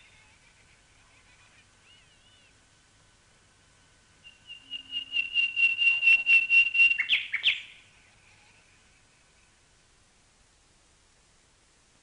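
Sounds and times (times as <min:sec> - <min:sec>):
bird calling high repeated notes: 0:04.2 - 0:08.3.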